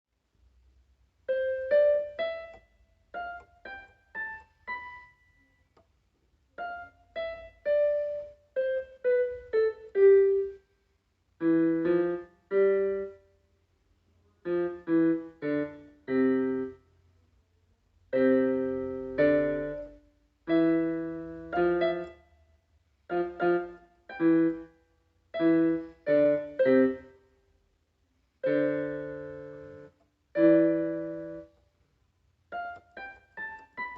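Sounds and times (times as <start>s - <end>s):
solo piano music: 1.2s - 5.8s, 6.6s - 10.7s, 11.4s - 13.4s, 14.4s - 16.8s, 18.1s - 22.4s, 23.0s - 27.3s, 28.2s - 31.6s, 32.5s - 33.9s.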